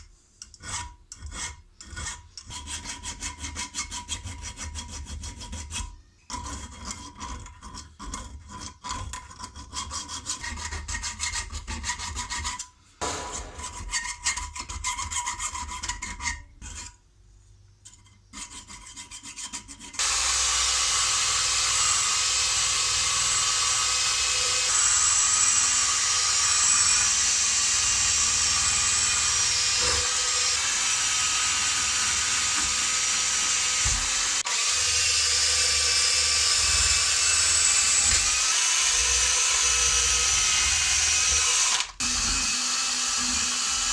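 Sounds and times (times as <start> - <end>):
small power tool running: 20.0 - 43.9.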